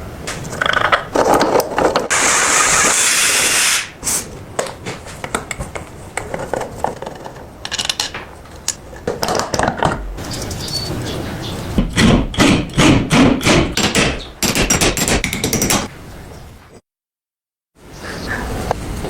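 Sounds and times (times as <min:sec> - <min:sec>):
metal clattering and scraping: 0:00.3 - 0:02.1, 0:04.7 - 0:11.7.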